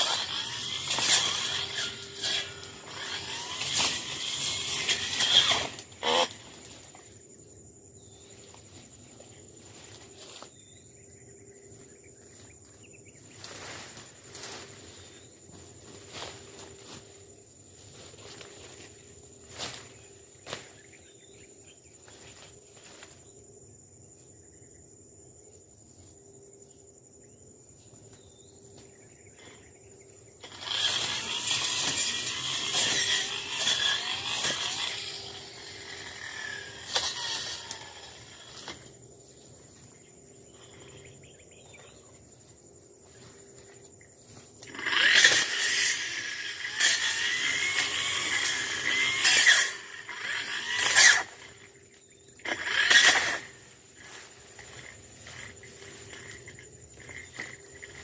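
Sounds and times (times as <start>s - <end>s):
brush cutter cutting and idling: 0.0s - 7.2s, 17.8s - 23.1s, 30.2s - 39.0s, 44.3s - 58.0s
high insect drone: 0.0s - 58.0s.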